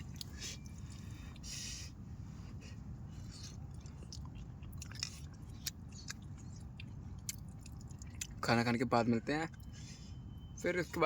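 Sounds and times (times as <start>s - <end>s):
person chewing food: 0.0s - 1.8s, 2.5s - 8.5s.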